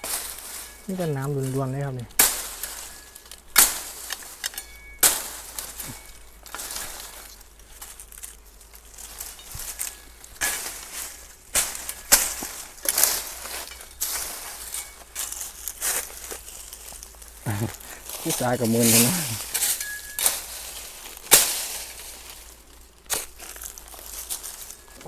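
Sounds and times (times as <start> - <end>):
branches cracking and snapping: 0.0 - 25.0.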